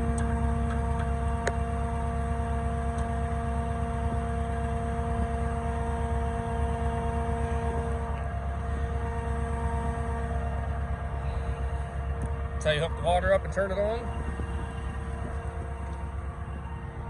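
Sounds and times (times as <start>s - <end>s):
pump engine rumbling: 0.0s - 17.0s.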